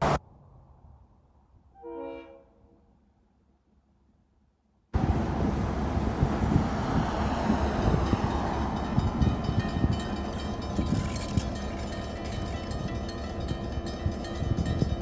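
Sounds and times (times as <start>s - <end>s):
train wheels rumbling on rails: 5.0s - 15.0s.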